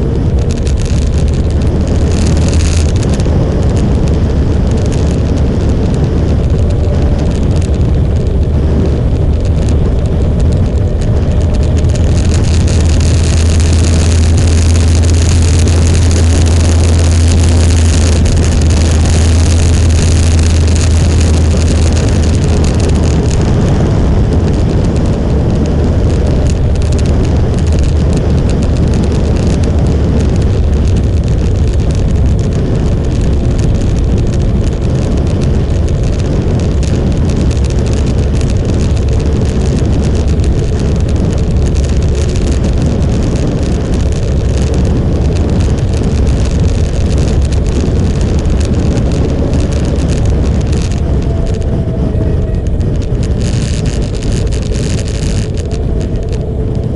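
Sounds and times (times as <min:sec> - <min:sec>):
motorcycle engine drone: 0:00.0 - 0:56.9
rushing wind noise: 0:00.0 - 0:56.9.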